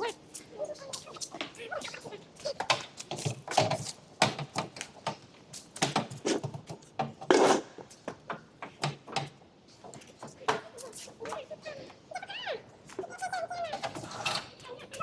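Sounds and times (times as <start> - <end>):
rough scrape or clatter: 7.3 - 7.8.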